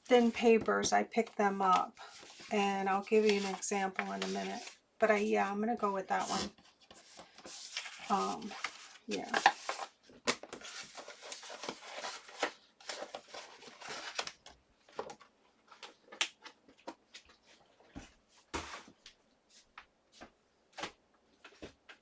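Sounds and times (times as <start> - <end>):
paper rustling: 1.2 - 5.5, 6.2 - 18.0.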